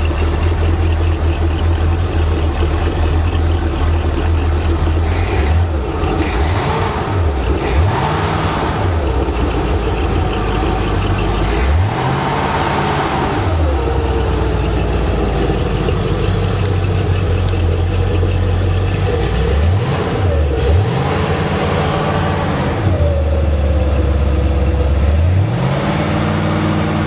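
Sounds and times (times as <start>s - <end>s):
boat engine revving: 0.0s - 27.0s.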